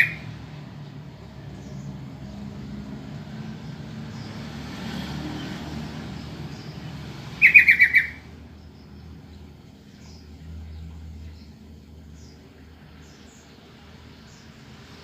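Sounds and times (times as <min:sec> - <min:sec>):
bulbul chattering call: 0:00.0 - 0:00.3, 0:07.4 - 0:09.1.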